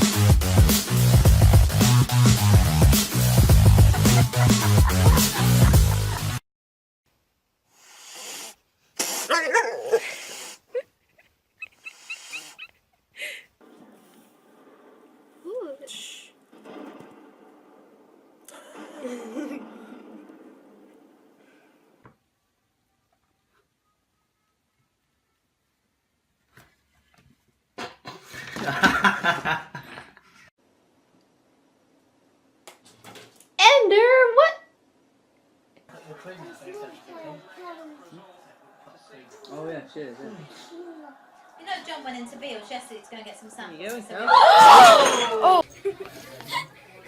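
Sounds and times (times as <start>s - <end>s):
person laughing: 3.6s - 6.4s, 9.3s - 13.5s, 18.5s - 19.9s.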